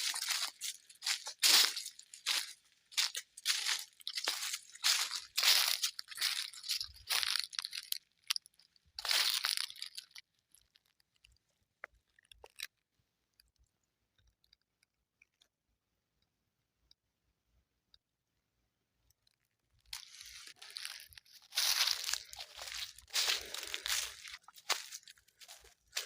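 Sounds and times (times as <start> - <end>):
footsteps crunching on forest floor: 0.0 - 8.0, 9.0 - 10.2, 19.9 - 26.0
small crackles and ticks: 0.0 - 17.0, 19.0 - 26.0.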